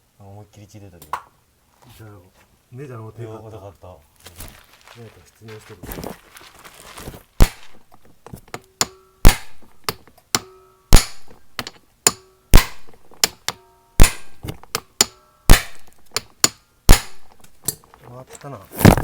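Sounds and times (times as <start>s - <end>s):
hammer striking impact driver: 7.4s - 17.9s
metallic ring: 10.4s - 16.2s.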